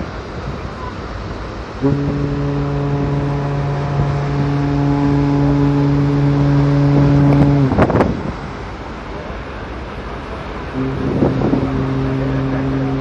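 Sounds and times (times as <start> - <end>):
ferry horn long deep blast: 1.8 - 8.6, 10.7 - 13.0.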